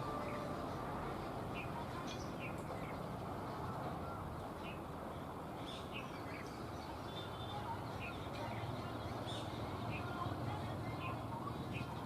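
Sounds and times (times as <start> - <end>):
steady background noise: 0.0 - 12.0
birds chirping: 5.6 - 12.0.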